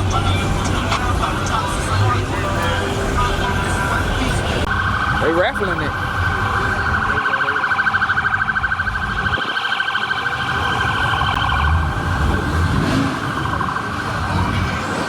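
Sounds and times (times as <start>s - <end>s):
electronic siren pulsing: 4.6s - 15.0s.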